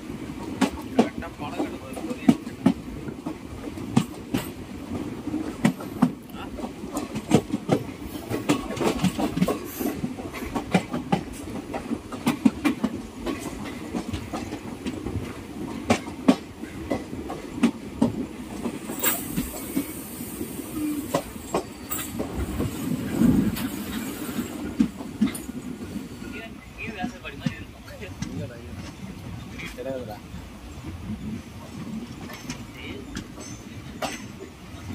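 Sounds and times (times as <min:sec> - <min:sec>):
train rumbling on track: 0:00.0 - 0:34.9
wheels clicking over rail joints: 0:00.4 - 0:20.0, 0:21.1 - 0:26.0, 0:31.9 - 0:34.9.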